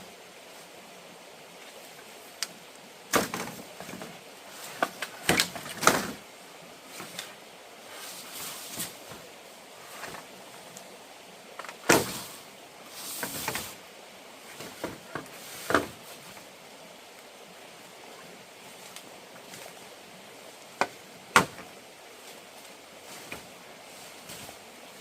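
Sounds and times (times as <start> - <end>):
knocks and clatters of wood: 3.1 - 6.2, 11.6 - 12.3, 14.5 - 16.4, 20.8 - 21.8
scraping rustle: 3.1 - 10.9, 11.6 - 16.6, 18.6 - 25.0.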